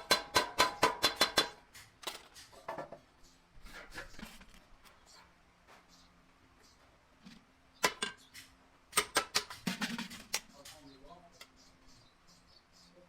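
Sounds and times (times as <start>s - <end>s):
loud strikes on sheet metal: 0.0s - 1.6s.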